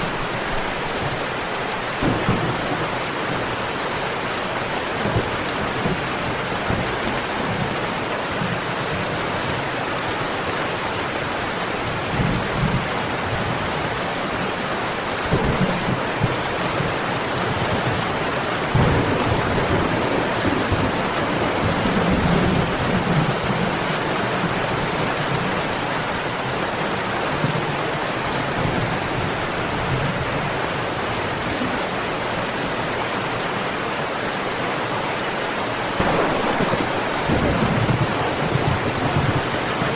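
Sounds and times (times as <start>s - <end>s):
thunder rumbling: 0.0s - 7.8s, 15.2s - 26.3s, 35.9s - 39.9s
steady rain: 0.0s - 39.9s.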